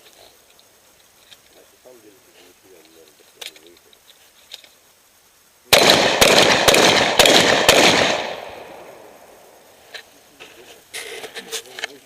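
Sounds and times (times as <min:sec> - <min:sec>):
shotgun shots: 0:05.7 - 0:09.3.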